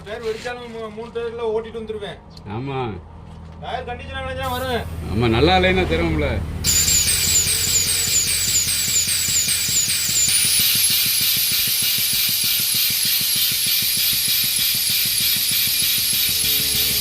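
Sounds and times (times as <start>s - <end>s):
air tool running: 4.4s - 5.3s, 6.6s - 17.0s
repeating high squeak: 6.6s - 17.0s.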